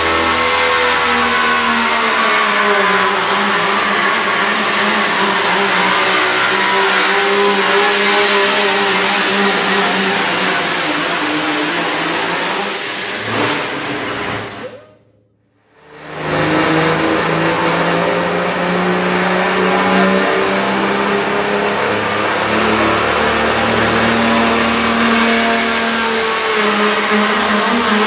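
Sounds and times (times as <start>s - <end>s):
high turbo whistle: 0.0s - 14.6s.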